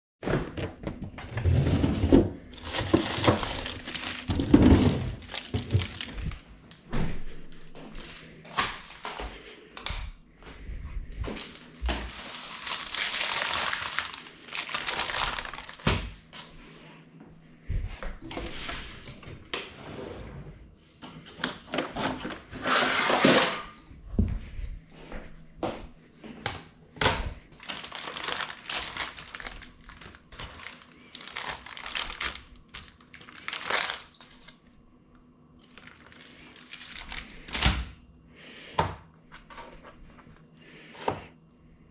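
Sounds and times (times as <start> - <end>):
packaging rustling and crinkling: 2.5 - 6.6, 11.2 - 16.5, 27.5 - 34.6, 35.6 - 37.9.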